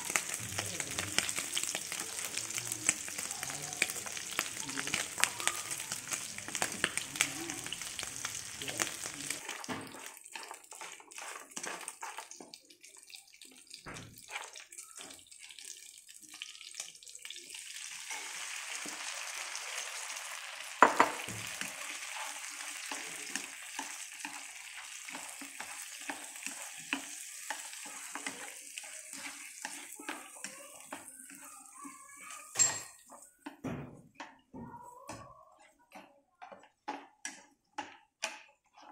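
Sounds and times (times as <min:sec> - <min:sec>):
ribs sizzling in a frying pan: 0:00.0 - 0:32.7
chopsticks scraping a pan: 0:07.7 - 0:12.4, 0:21.5 - 0:33.4.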